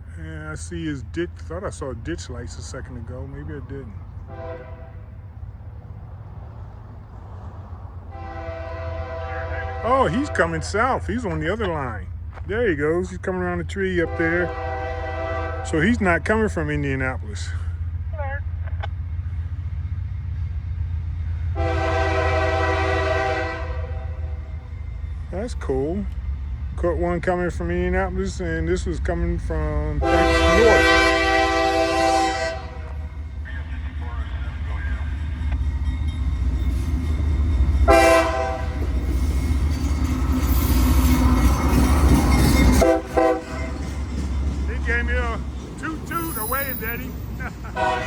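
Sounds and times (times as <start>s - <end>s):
train rumbling: 0.0s - 48.0s
wheel and rail noise: 0.0s - 48.0s
locomotive air horn blast: 4.3s - 5.2s, 8.1s - 10.6s, 14.0s - 15.9s, 21.6s - 24.4s, 30.0s - 33.1s, 37.8s - 38.8s, 42.7s - 43.8s, 47.7s - 48.0s.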